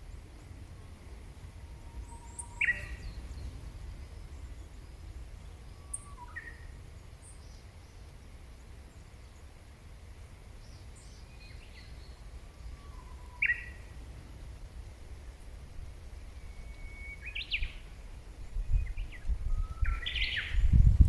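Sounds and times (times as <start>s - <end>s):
whistled bird calls: 1.7s - 3.2s, 5.7s - 6.7s, 12.6s - 13.8s, 16.3s - 17.9s, 18.8s - 20.8s.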